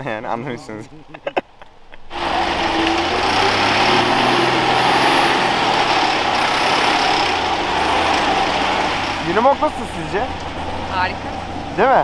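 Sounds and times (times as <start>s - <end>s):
diesel truck engine running: 1.7s - 12.0s.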